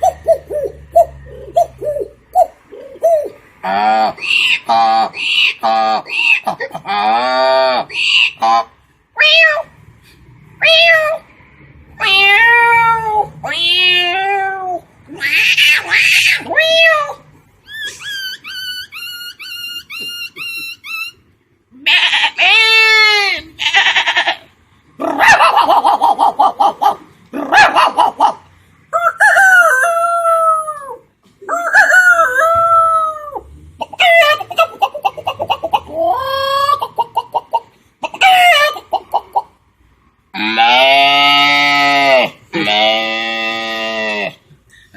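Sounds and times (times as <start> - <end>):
person imitating dog howls: 12.0 - 17.2, 29.0 - 34.6, 35.9 - 36.8
person imitating bird chirps: 12.9 - 21.2
person imitating rooster crows: 28.9 - 34.4.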